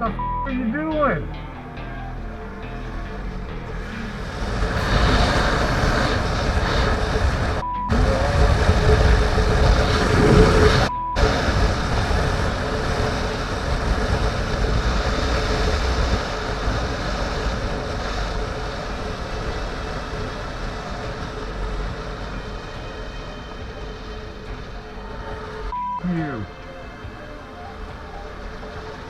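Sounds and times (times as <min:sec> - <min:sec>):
censor beeps: 0:00.0 - 0:00.7, 0:07.6 - 0:08.3, 0:10.8 - 0:11.4, 0:25.7 - 0:26.6
wind noise: 0:02.7 - 0:25.9.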